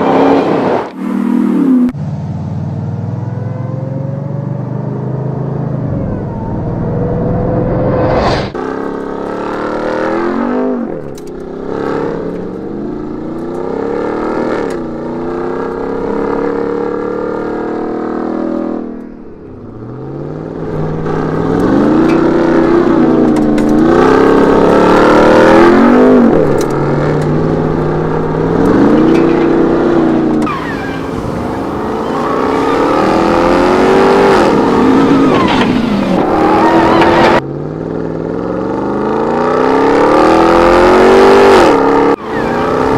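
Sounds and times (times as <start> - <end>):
pickup truck engine accelerating: 8.6 - 42.9.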